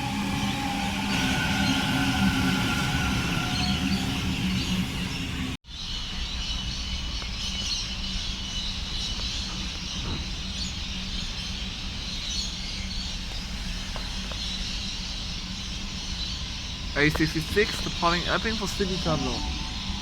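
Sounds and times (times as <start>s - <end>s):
electric train humming: 0.0s - 5.6s, 13.1s - 20.0s
faint high tone: 19.0s - 20.0s.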